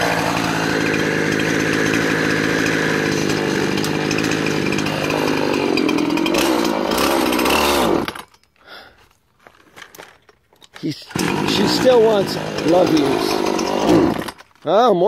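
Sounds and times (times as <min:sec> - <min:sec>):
chainsaw cutting wood: 0:00.0 - 0:08.4, 0:11.1 - 0:14.6.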